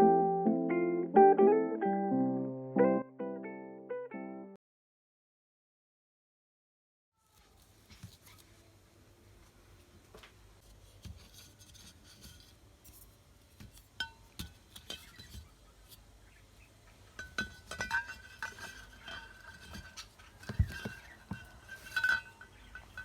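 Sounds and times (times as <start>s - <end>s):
glassware clinking: 17.2s - 23.0s.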